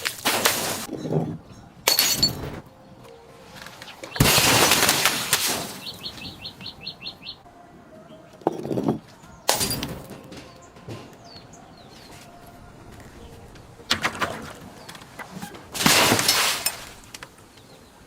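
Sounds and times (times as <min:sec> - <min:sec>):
glass smashing: 0:01.9 - 0:02.5, 0:04.2 - 0:05.9, 0:09.5 - 0:10.6, 0:15.8 - 0:17.1.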